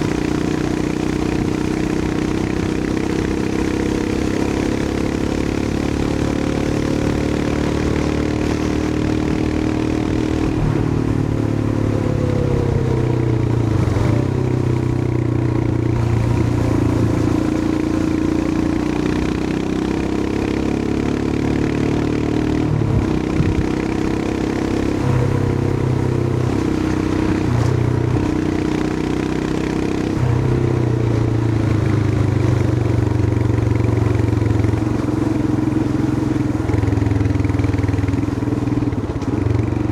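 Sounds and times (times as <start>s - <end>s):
motorcycle engine running: 0.0s - 39.9s
wind noise: 22.8s - 23.8s.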